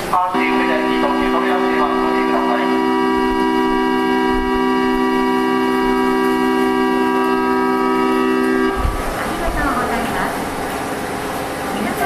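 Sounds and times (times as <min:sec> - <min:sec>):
platform departure buzzer: 0:00.4 - 0:08.9.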